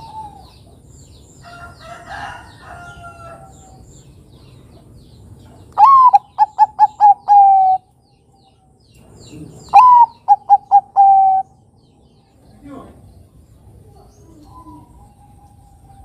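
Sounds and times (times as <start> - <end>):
dove cooing: 0.0 - 0.8, 5.8 - 7.9, 9.4 - 11.6
faint bird chirps: 5.4 - 16.0.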